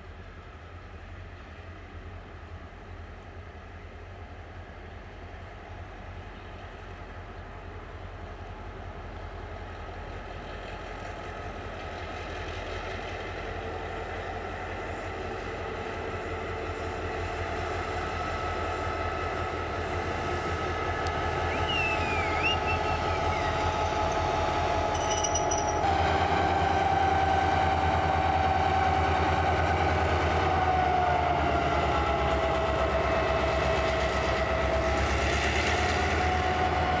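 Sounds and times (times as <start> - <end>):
train passing by: 0.0 - 37.0
steady whine: 12.4 - 29.8.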